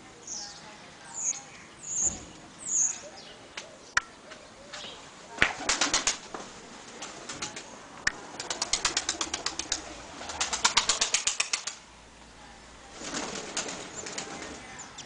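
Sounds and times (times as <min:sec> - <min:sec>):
pigeon wings flapping: 0:05.4 - 0:11.8, 0:13.0 - 0:14.6.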